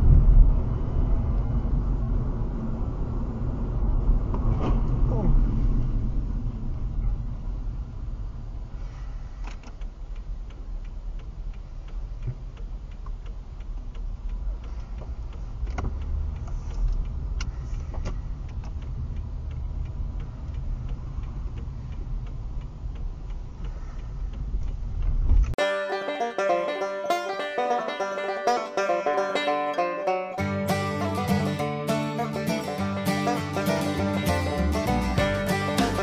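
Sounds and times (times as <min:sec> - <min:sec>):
road and engine rumble: 0:00.0 - 0:36.0
turn signal relay clicking: 0:09.4 - 0:25.6.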